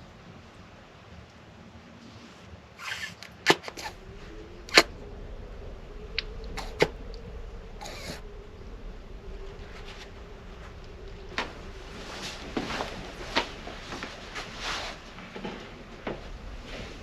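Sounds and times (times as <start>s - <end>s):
faint steady hum: 0.0s - 17.0s
rustling: 1.9s - 17.0s.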